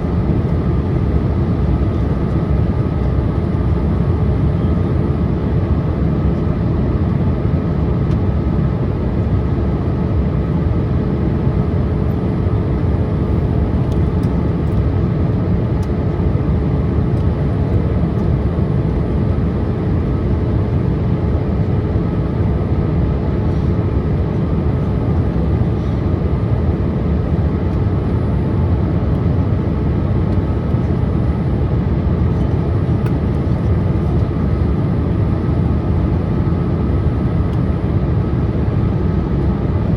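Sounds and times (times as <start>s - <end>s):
jet engine noise: 0.0s - 39.9s.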